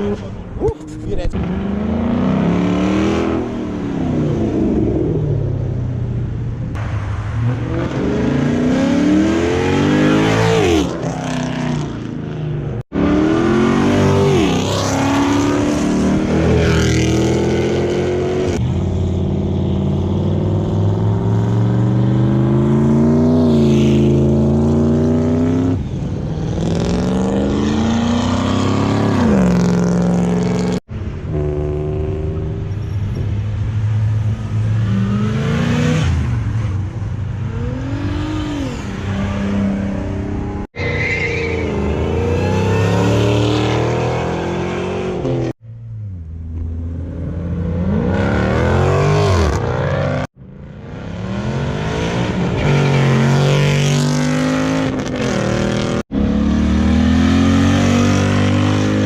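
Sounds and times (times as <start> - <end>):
car engines revving and accelerating: 0.0 - 59.0.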